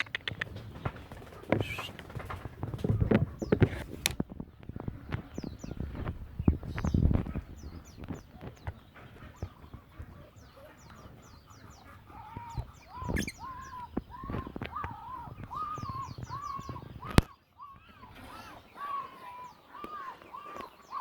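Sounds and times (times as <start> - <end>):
birds short arched calls: 1.5 - 2.2, 6.8 - 21.0
high falling bird chirps: 10.4 - 21.0.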